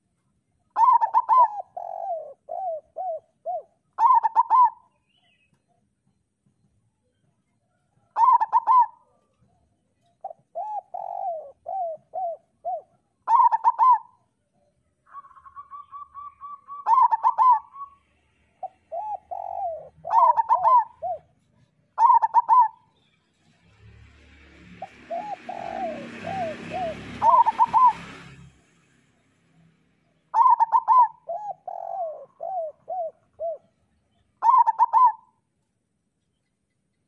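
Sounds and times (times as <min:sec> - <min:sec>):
doves cooing: 0:00.8 - 0:04.9, 0:08.0 - 0:09.3, 0:10.2 - 0:14.2, 0:15.1 - 0:18.0, 0:18.6 - 0:22.8, 0:24.8 - 0:28.2, 0:30.3 - 0:33.8, 0:34.4 - 0:35.4.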